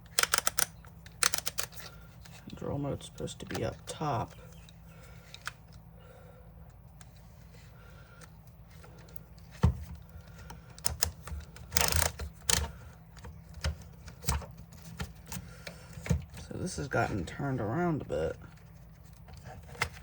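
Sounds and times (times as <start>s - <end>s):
drill parts clicking and knocking: 0.0s - 2.5s, 8.8s - 16.4s.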